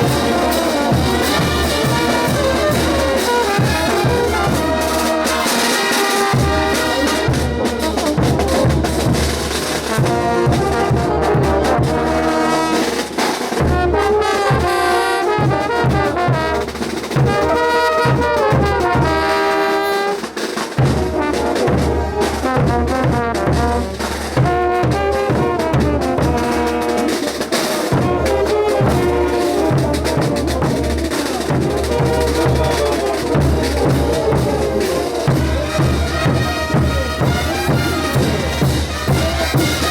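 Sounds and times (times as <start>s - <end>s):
bass drum beat: 0.0s - 5.0s, 27.9s - 39.9s
brass band trumpets and trombones: 0.0s - 39.9s.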